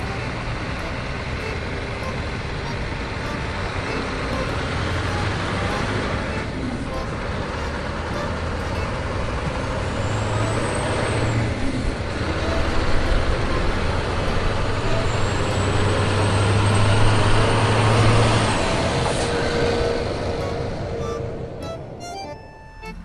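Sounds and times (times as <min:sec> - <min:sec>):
road noise: 0:00.0 - 0:23.0
truck engine running: 0:00.0 - 0:23.0.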